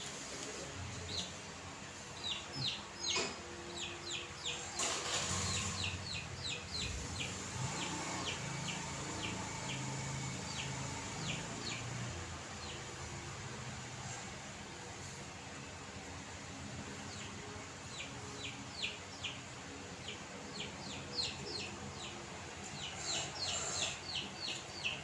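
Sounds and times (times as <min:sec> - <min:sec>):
bird chirping: 0:02.0 - 0:13.1, 0:16.9 - 0:25.0.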